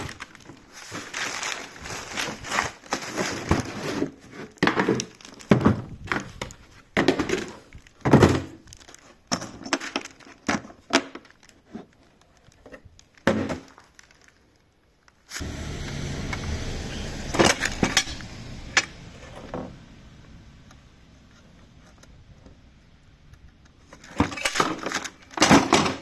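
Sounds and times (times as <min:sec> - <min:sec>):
packaging crinkling and rustling: 0:00.0 - 0:15.4, 0:23.4 - 0:26.0.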